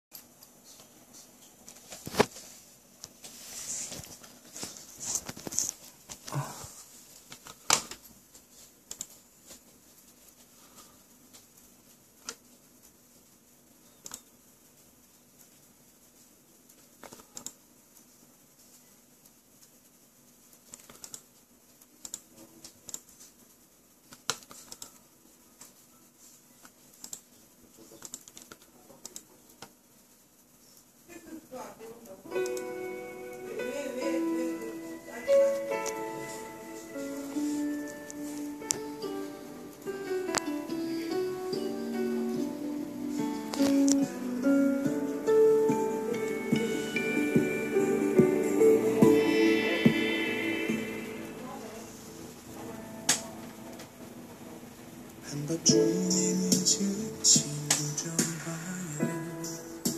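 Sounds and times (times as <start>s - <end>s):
rustling: 0.6s - 32.0s
keyboard keystrokes and clicks: 8.9s - 9.2s, 14.0s - 14.3s, 17.0s - 17.6s, 20.7s - 21.3s, 22.0s - 23.2s, 24.1s - 25.0s, 28.0s - 29.7s.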